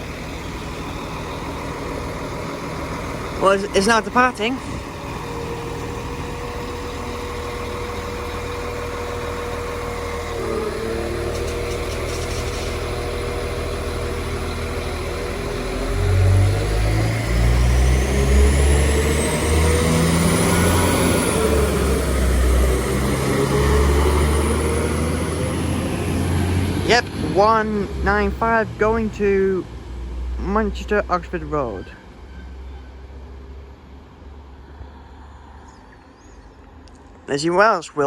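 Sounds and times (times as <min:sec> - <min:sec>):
rising whine: 0:00.0 - 0:27.4
train diesel engine rumble: 0:00.0 - 0:38.0
train engine hum: 0:00.0 - 0:38.0.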